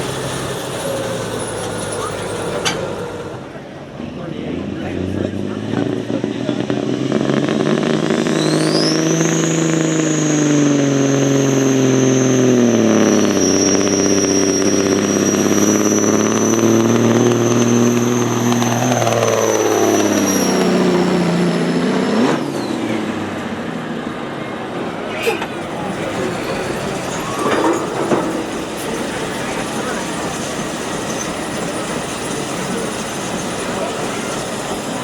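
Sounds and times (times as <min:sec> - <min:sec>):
engine running at full power: 0:00.0 - 0:35.0.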